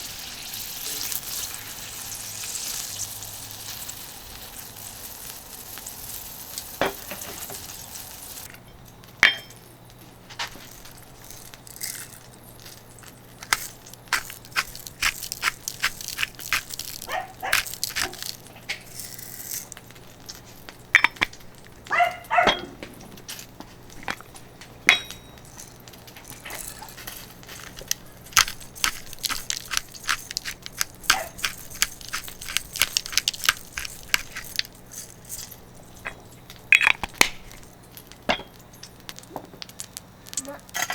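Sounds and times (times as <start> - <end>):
steak sizzling on a griddle: 0.0 - 8.5
sharp clicks and crackles: 10.8 - 24.4, 25.1 - 40.9.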